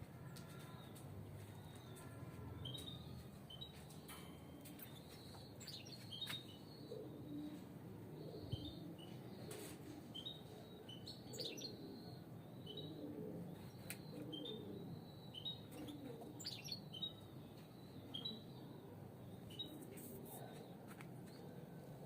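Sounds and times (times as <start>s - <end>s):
finches chirping: 13.7s - 17.2s.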